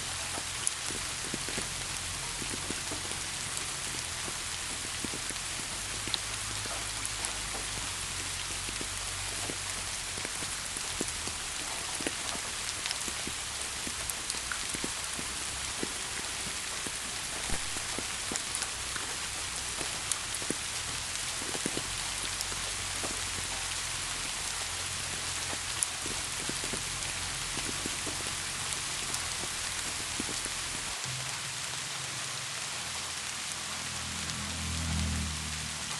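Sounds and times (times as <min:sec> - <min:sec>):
raindrops ticking: 0:00.0 - 0:35.9
steady rain hiss: 0:00.0 - 0:35.9.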